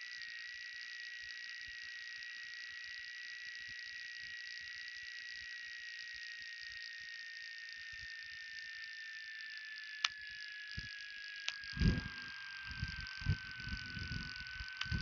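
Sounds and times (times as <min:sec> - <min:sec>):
thin whine sinking in pitch: 0:08.6 - 0:15.0
sharp clicks: 0:12.7 - 0:15.0.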